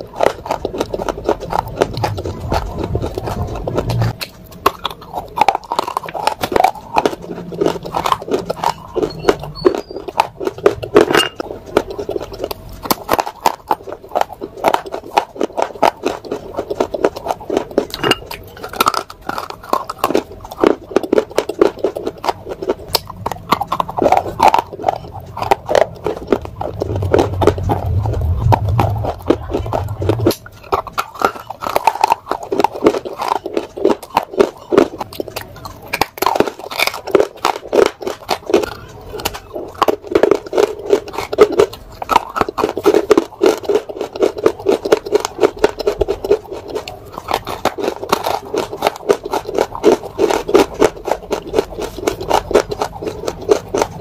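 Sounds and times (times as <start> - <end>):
crunching and chewing clay: 0.0 - 54.0.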